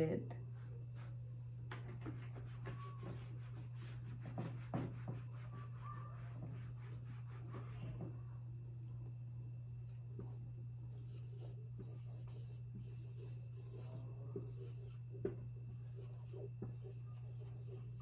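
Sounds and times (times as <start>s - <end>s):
steady low hum: 0.0s - 18.0s
pen writing strokes and taps: 1.7s - 8.1s, 11.8s - 17.9s.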